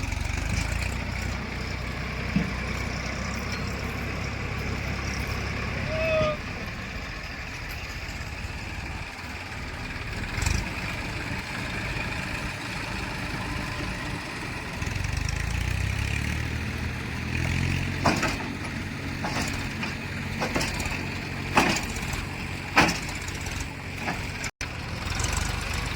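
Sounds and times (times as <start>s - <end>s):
diesel engine running: 0.0s - 25.9s
sharp knocks or clanks: 2.2s - 4.0s, 17.9s - 24.5s.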